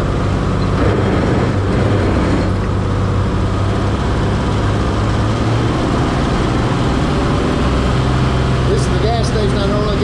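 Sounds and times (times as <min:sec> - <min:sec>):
road and wind noise: 0:00.0 - 0:10.0
truck engine running: 0:00.0 - 0:10.0.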